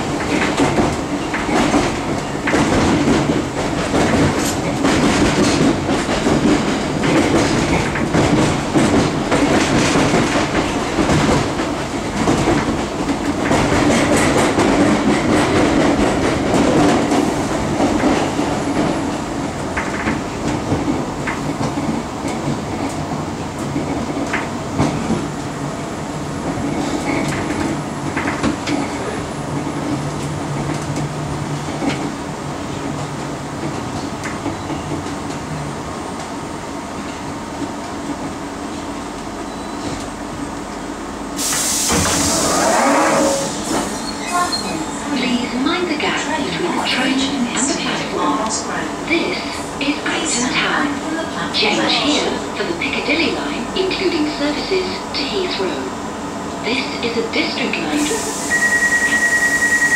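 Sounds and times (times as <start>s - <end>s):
rumble of wheels on track: 0.0s - 59.9s.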